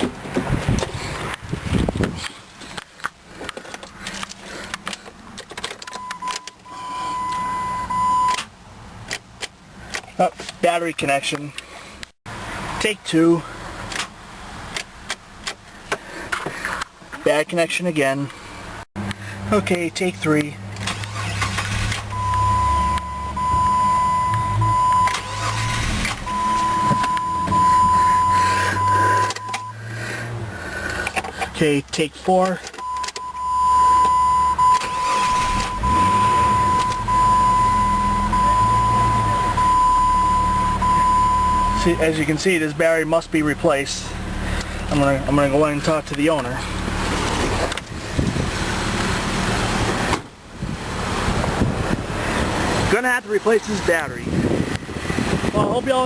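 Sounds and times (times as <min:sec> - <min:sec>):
high electronic beep: 0:05.9 - 0:08.4, 0:22.1 - 0:29.8, 0:32.8 - 0:42.0.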